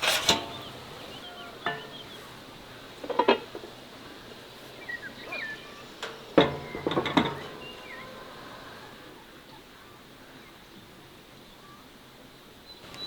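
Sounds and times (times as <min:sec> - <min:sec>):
dishes clinking and knocking: 0:00.0 - 0:02.3, 0:06.0 - 0:08.1
faint high chirps: 0:04.8 - 0:10.1.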